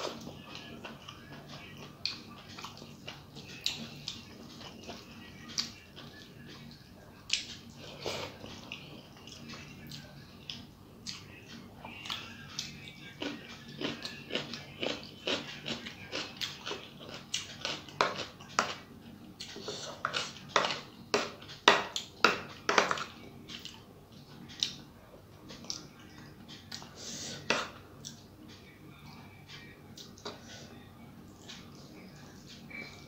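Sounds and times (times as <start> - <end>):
chewing and lip-smacking: 0.0 - 22.2.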